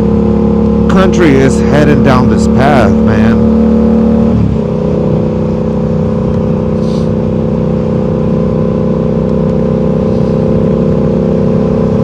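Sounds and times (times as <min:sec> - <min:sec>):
motorcycle engine cruising: 0:00.0 - 0:12.0
road and wind noise: 0:00.0 - 0:12.0
short hiss: 0:06.8 - 0:07.1.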